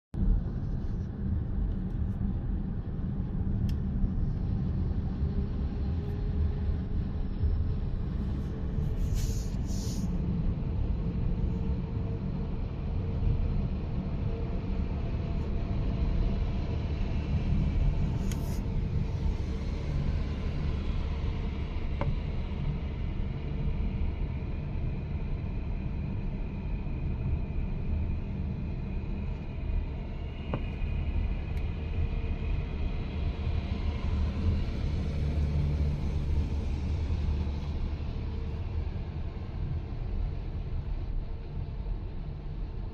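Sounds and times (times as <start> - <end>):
short air hisses: 9.0 - 10.1.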